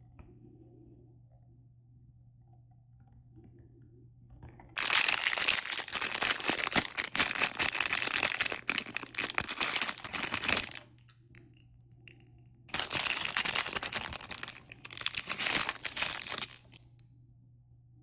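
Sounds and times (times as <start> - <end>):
packaging crinkling and tearing: 4.8 - 10.9, 12.7 - 16.8.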